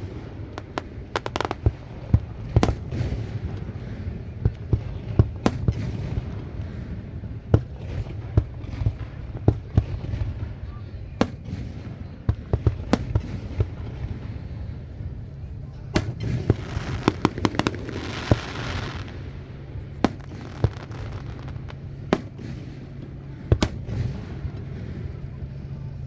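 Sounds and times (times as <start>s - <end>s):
sizzling firework crackle: 0.0s - 3.7s, 4.7s - 6.2s, 11.2s - 11.8s, 12.9s - 13.5s, 16.0s - 19.4s, 20.0s - 25.2s
firework shell bursts: 2.3s - 3.7s, 5.4s - 6.0s, 11.2s - 11.7s, 13.0s - 13.4s, 16.0s - 18.6s, 20.0s - 25.3s.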